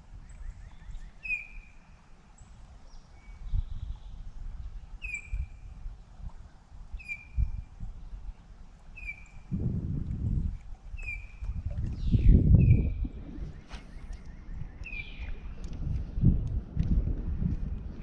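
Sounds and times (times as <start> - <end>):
bird calling: 0.3 - 1.9, 9.0 - 9.5
low rumbling noise: 9.4 - 10.7, 11.5 - 18.0.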